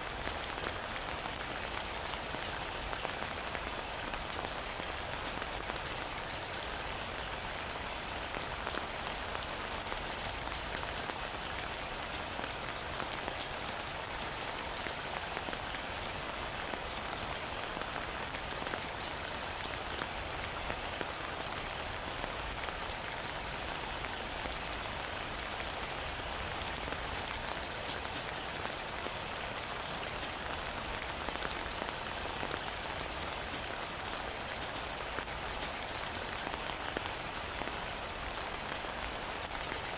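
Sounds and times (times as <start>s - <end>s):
heavy rain falling: 0.1s - 39.9s.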